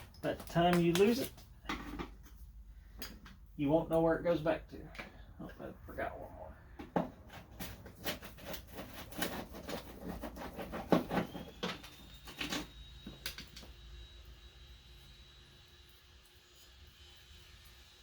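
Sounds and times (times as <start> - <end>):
faint high whine: 11.0 - 18.0.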